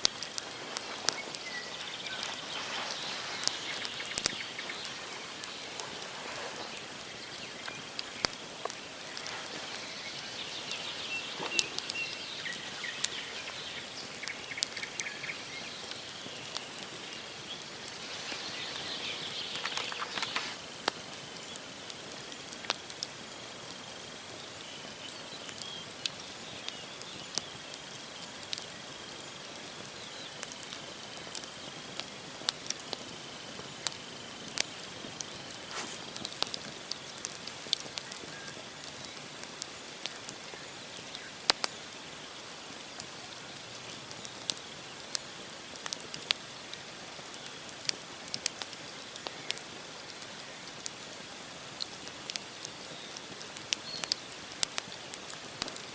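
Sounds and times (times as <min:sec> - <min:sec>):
campfire crackling and popping: 0:00.0 - 0:55.9
chattering bird calls: 0:00.2 - 0:20.6.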